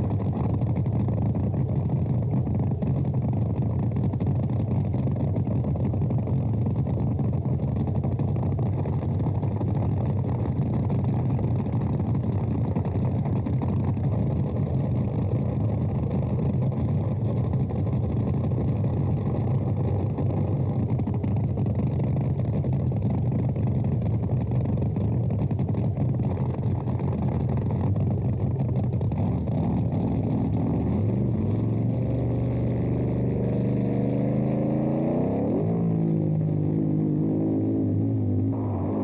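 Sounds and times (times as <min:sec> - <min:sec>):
boat engine droning: 0:37.5 - 0:39.0.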